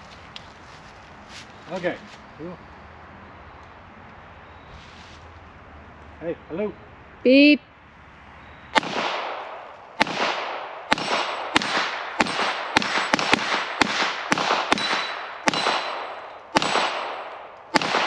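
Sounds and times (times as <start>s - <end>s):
pistol shots with echo: 8.7s - 18.0s.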